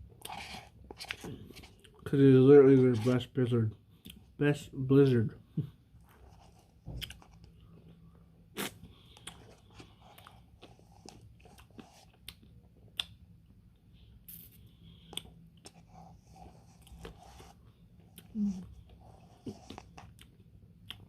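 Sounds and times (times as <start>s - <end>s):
chewing and crunching: 6.0s - 13.3s, 14.8s - 21.0s.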